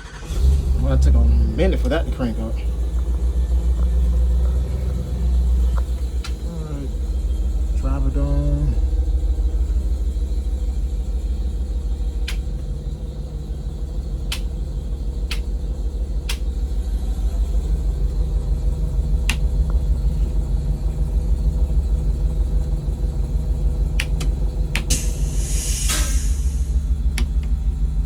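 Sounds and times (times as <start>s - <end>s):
bus engine idling: 0.0s - 28.0s
dash switch clicks: 5.7s - 6.4s, 12.2s - 12.7s, 14.2s - 15.6s, 16.3s - 16.5s, 19.2s - 19.8s, 23.9s - 25.0s, 27.1s - 27.6s.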